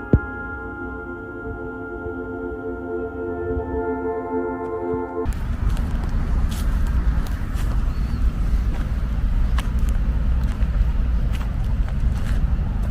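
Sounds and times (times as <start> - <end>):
wind buffeting microphone: 5.3 - 12.9.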